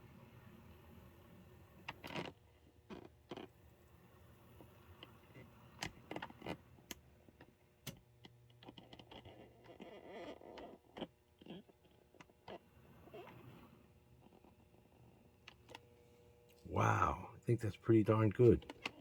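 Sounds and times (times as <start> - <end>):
faint low motor hum: 12.2 - 19.0.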